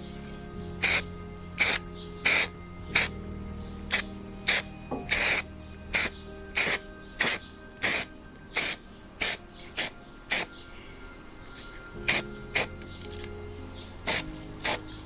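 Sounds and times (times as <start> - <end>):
hissing spray bursts: 0.8 - 3.1, 3.9 - 10.5, 12.0 - 12.8, 14.1 - 14.8.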